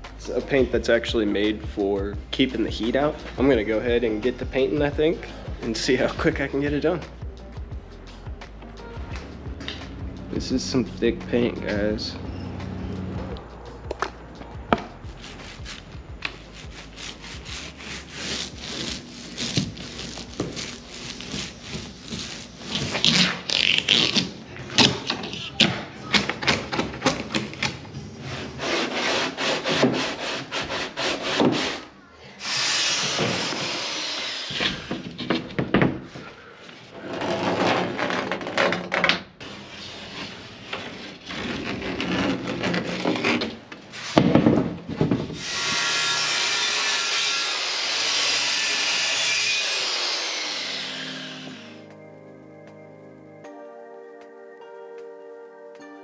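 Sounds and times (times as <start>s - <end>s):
paint rubbing strokes: 15.0s - 23.2s.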